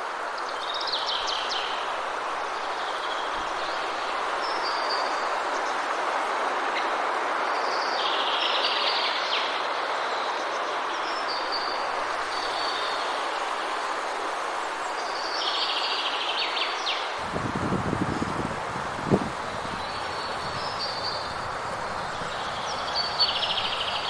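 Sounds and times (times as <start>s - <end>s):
steady rushing wind: 17.1s - 24.0s
bird trilling: 19.3s - 24.0s.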